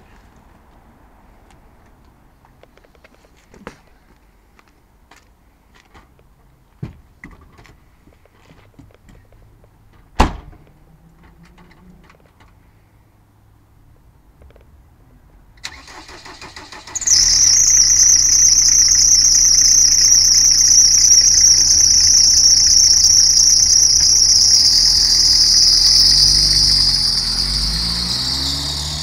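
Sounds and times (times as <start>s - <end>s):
high-pitched engine whine: 15.9s - 29.0s
car engine running: 17.1s - 29.0s.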